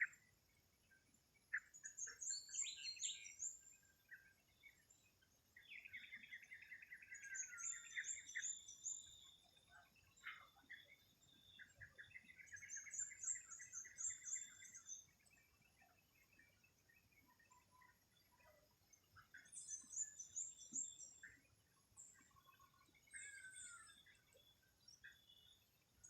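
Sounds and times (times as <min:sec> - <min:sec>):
songbird high twittering: 0:01.5 - 0:04.2, 0:05.6 - 0:09.5, 0:10.1 - 0:15.1, 0:23.0 - 0:25.6.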